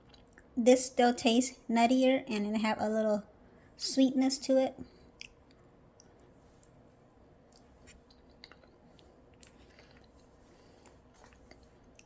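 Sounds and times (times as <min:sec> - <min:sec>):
person chewing: 0:07.5 - 0:12.0.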